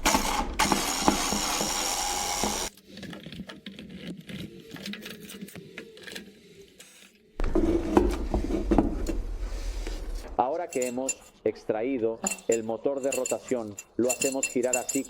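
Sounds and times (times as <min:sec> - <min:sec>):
small electric motor whirring: 0:00.1 - 0:02.7
metal parts clicking and handled: 0:12.2 - 0:15.0.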